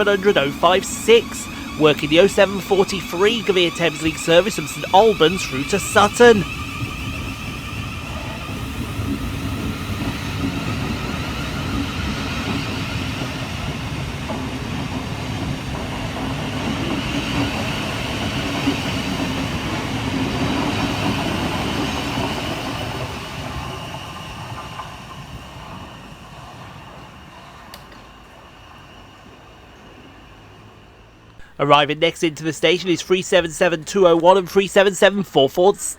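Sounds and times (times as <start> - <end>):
electric train pulling out: 0.0 - 35.9.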